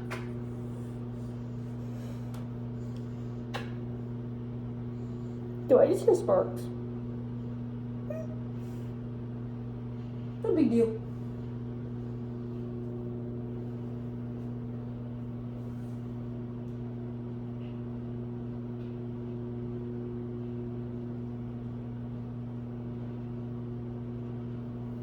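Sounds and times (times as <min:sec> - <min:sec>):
microwave oven humming: 0:00.0 - 0:25.0.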